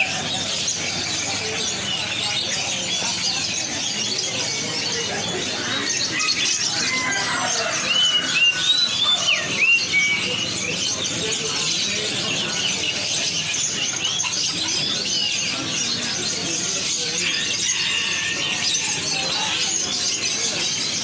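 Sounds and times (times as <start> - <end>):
songbirds chirping and twittering: 0.0 - 21.0
whistled bird notes: 0.0 - 21.0.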